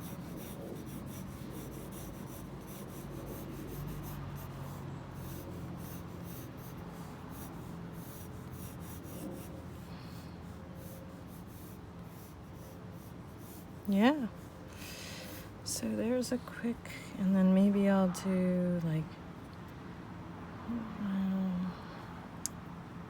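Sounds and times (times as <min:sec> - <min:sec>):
pencil strokes on paper: 0:00.0 - 0:16.5.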